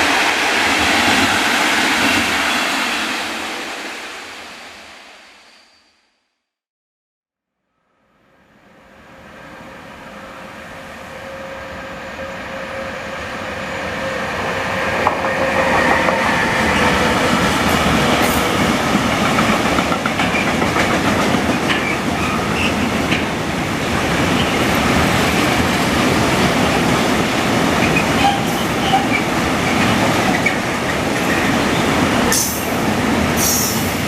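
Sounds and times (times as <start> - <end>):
train passing: 0.0 - 5.8, 8.2 - 34.0
wheels clacking over rail joints: 15.0 - 23.4.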